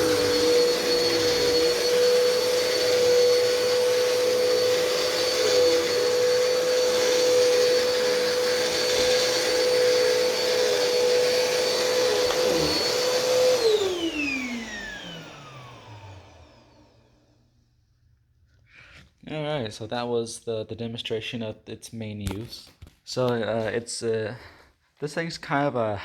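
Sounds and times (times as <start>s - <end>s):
vacuum cleaner motor whine: 0.0s - 17.4s.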